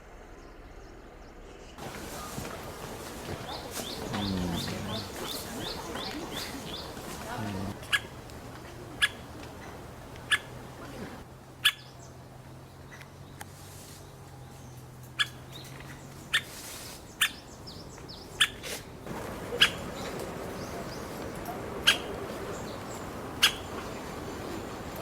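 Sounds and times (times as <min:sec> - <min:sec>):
woodpecker call notes: 0:01.8 - 0:12.1, 0:16.3 - 0:25.0.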